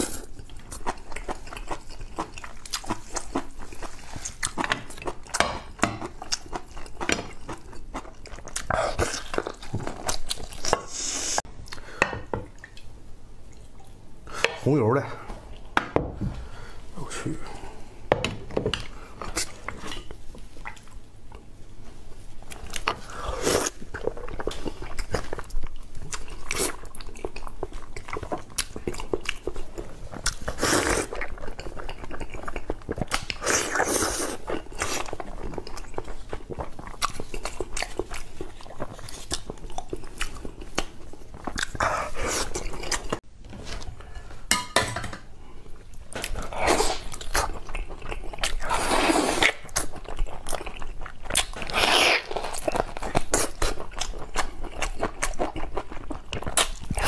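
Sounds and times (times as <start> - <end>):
person biting and chewing: 30.2 - 43.2, 46.2 - 57.0.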